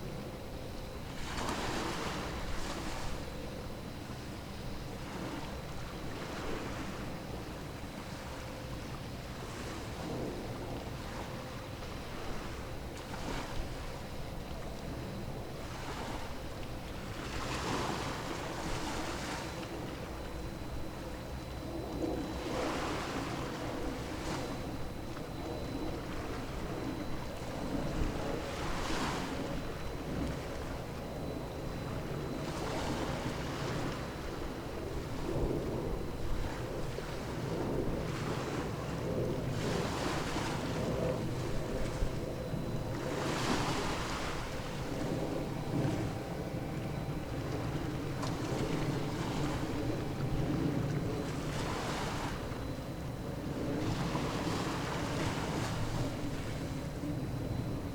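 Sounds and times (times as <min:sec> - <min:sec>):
wind buffeting microphone: 0:09.0 - 0:57.9
sea waves washing on shore: 0:22.1 - 0:57.9
low steady rumble: 0:29.4 - 0:57.9.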